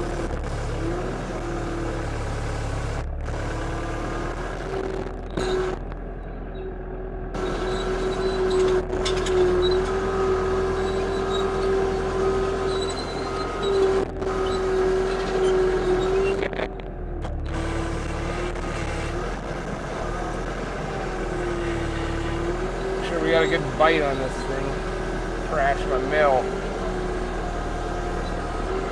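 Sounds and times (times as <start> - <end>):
sawmill engine running: 7.3 - 28.9.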